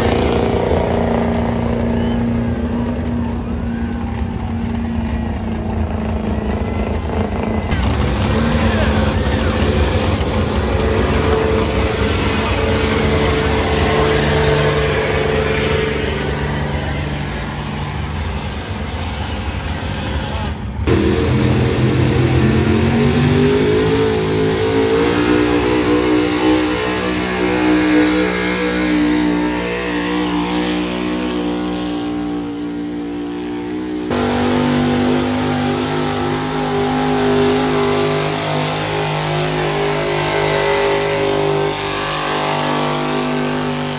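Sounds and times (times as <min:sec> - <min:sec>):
truck engine running under load: 0:00.0 - 0:25.2.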